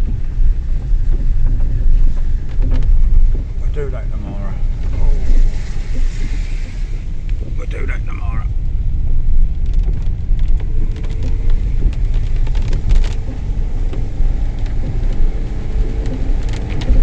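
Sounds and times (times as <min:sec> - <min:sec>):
car driving on a wet road: 0:00.0 - 0:17.0
light ticks: 0:09.5 - 0:17.0.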